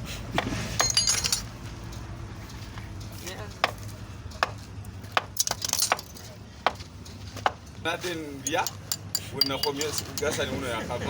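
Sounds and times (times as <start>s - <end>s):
metal parts clinking: 0.8s - 1.6s, 5.4s - 6.4s, 8.4s - 10.5s.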